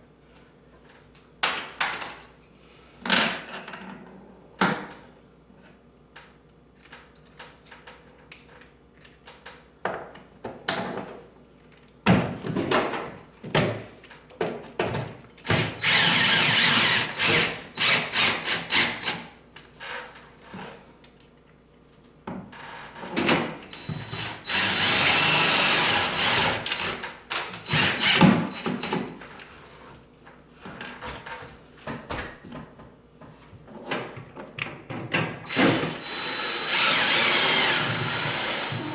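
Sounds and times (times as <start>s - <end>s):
power drill running: 15.6s - 19.0s, 23.7s - 26.9s, 27.6s - 28.3s, 35.5s - 38.9s.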